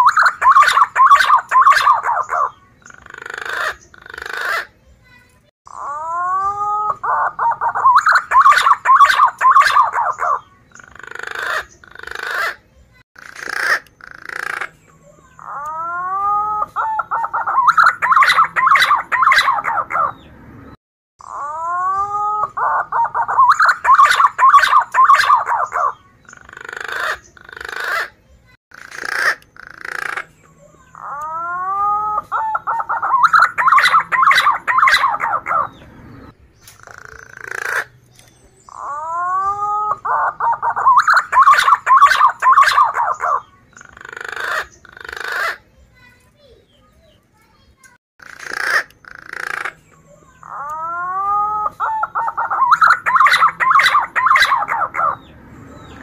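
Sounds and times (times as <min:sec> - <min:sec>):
pigeon warbling whistles: 0:00.0 - 0:02.5, 0:05.7 - 0:10.4, 0:15.4 - 0:20.1, 0:21.2 - 0:26.0, 0:30.9 - 0:35.8, 0:38.7 - 0:43.4, 0:50.4 - 0:55.2.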